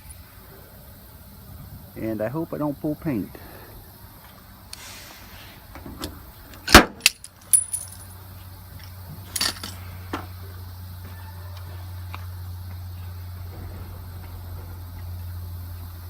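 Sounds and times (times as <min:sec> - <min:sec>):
steady low hum: 0:00.0 - 0:16.0
metallic clicks and rattles: 0:07.0 - 0:08.1, 0:09.3 - 0:09.8.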